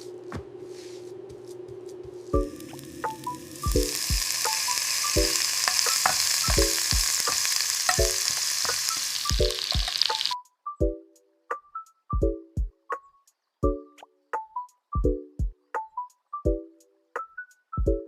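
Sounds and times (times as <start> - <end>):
food sizzling in a pan: 2.3 - 10.4
plucked rhythmic background tune: 9.3 - 18.0.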